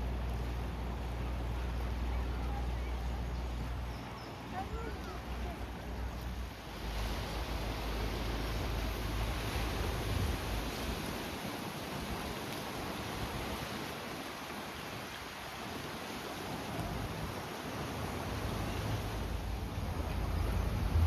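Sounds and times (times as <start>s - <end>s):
steady outdoor hiss: 0.0s - 21.0s
wind buffeting microphone: 16.5s - 21.0s
low rumble: 19.2s - 21.0s.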